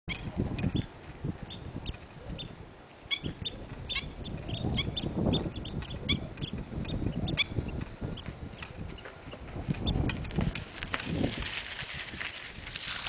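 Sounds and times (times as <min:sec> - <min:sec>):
birds chirping: 0:00.1 - 0:10.3.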